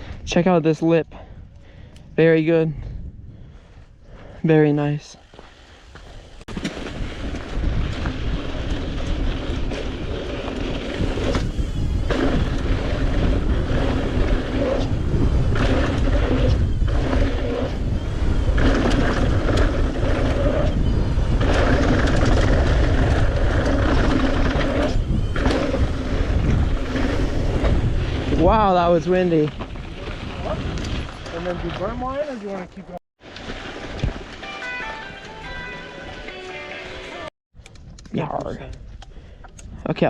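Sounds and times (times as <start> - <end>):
gusty wind on microphone: 1.1 - 4.4, 5.6 - 32.3
bike tyres rolling on dirt: 5.0 - 34.8.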